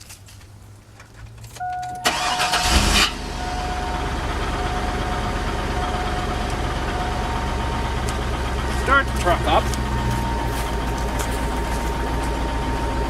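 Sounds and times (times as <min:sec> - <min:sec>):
car engine idling: 0:00.6 - 0:13.0
engine starter cranking: 0:01.6 - 0:09.9
thin steady whine: 0:01.6 - 0:13.0.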